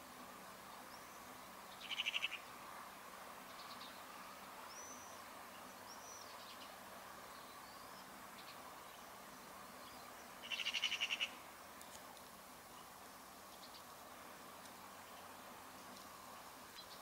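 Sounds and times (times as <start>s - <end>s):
outdoor background hush: 0.0s - 17.0s
birds chattering trill: 0.8s - 2.5s, 4.7s - 11.4s.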